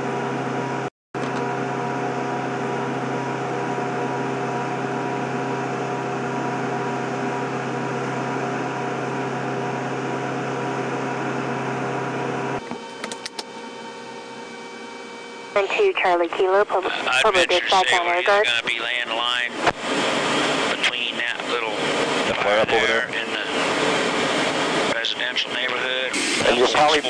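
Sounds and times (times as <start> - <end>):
turboprop engines droning: 0.0 - 27.0.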